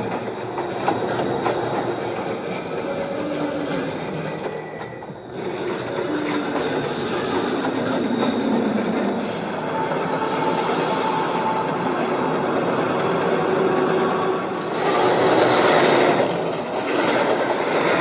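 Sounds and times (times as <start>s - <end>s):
train wheels rumbling on rails: 0.0s - 18.0s
metallic wheel squeals: 0.1s - 18.0s.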